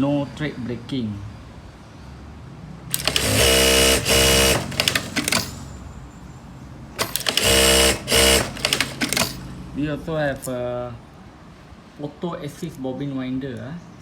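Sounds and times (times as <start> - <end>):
motor whine: 2.9 - 5.4, 7.1 - 9.2
sewing machine stitching: 2.9 - 5.7, 7.0 - 9.5.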